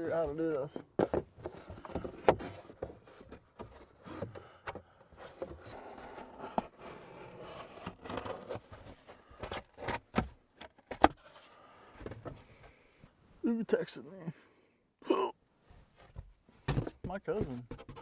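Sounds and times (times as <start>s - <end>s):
styrofoam board scraping: 5.3s - 10.3s, 16.7s - 18.0s.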